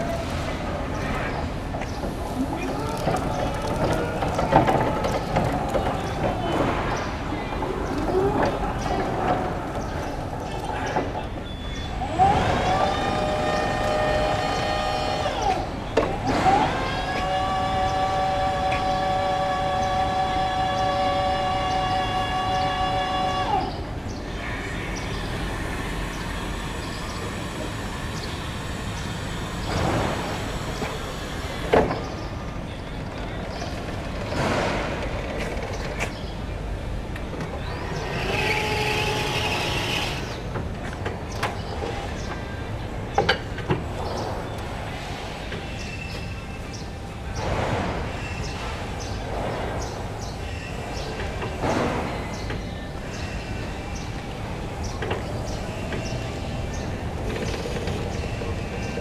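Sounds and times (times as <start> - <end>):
electric motor whining: 0.0 - 32.3, 36.0 - 42.6.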